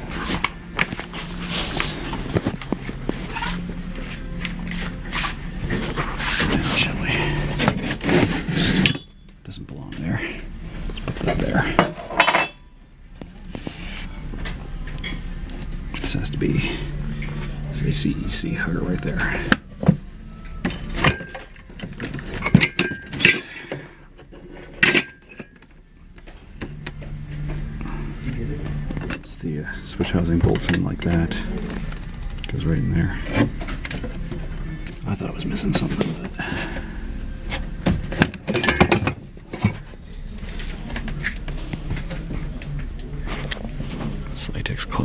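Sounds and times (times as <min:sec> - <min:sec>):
fan parts clicking and clattering: 0:00.0 - 0:13.6, 0:14.4 - 0:44.4
steady low hum: 0:00.0 - 0:45.0.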